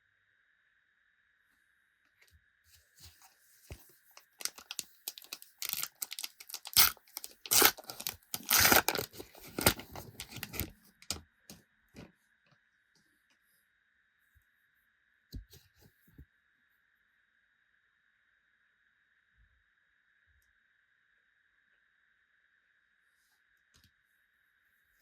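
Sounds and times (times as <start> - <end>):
foil wrapper tearing and crinkling: 4.2 - 11.2.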